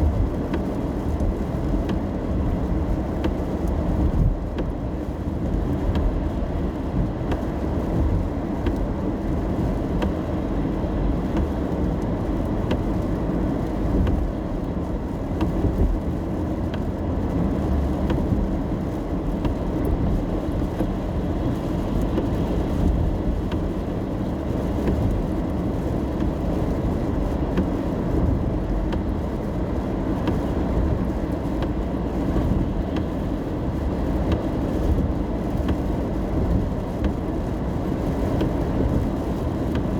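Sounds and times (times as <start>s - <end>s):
road rumble inside car: 0.0s - 39.9s.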